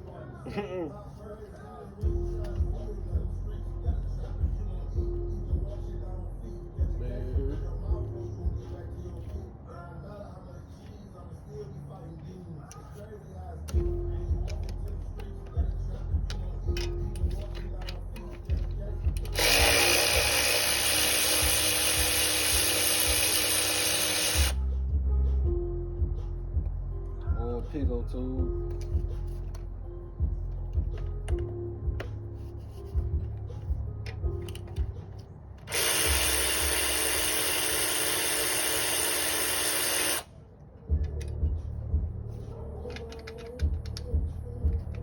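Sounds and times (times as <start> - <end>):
power tool running: 19.2 - 24.6, 35.6 - 40.3.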